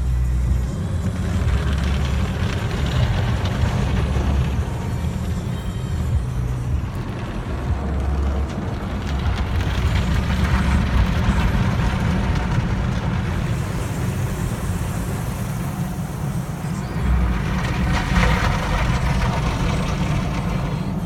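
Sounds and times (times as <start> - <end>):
low vehicle rumble: 0.0 - 21.0
spraying water hiss: 13.2 - 19.4.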